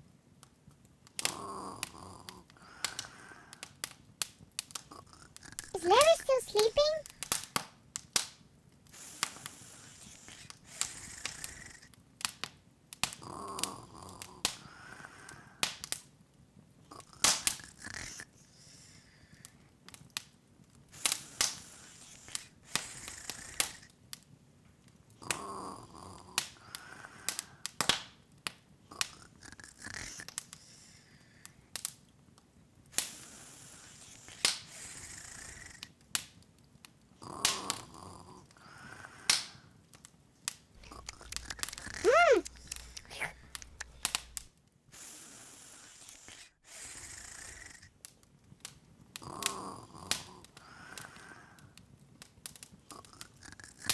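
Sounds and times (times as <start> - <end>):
wood fire crackling and popping: 40.5 - 44.5, 51.8 - 53.9.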